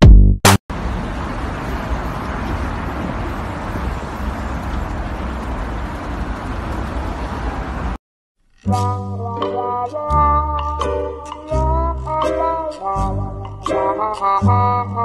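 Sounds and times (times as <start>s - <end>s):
music with sustained notes: 8.7s - 15.0s.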